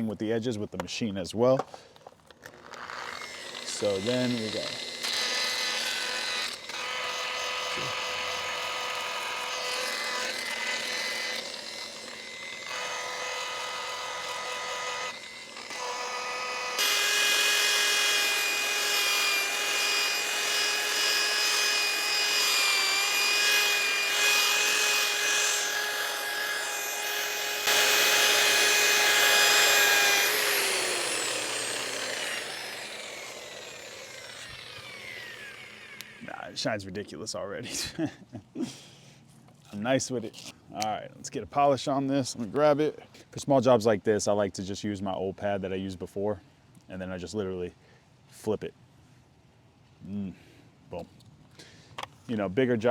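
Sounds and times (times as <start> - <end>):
electric polisher motor whining: 2.6 - 36.3.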